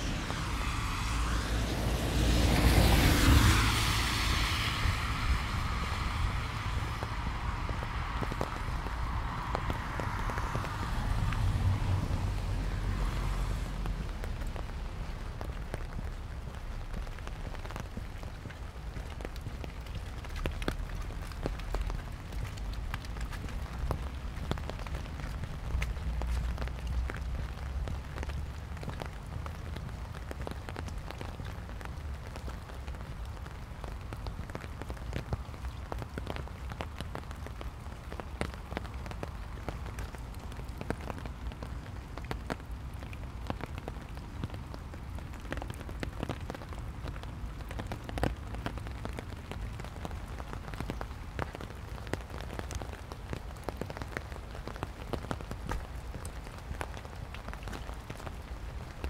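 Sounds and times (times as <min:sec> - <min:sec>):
rain on wet pavement: 0:00.0 - 0:59.0.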